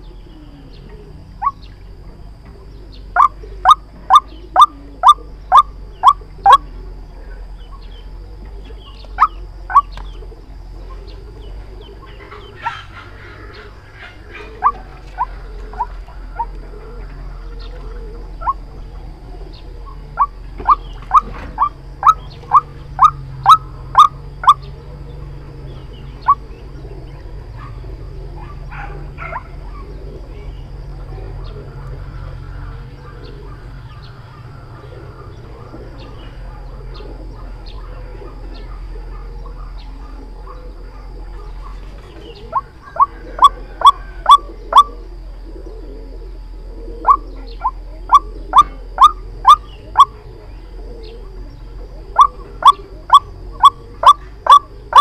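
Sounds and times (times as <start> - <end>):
waterhen calling: 0.0 - 1.8, 3.1 - 6.8, 8.4 - 25.0, 41.6 - 46.0, 46.8 - 55.0
faint background hum: 0.0 - 55.0.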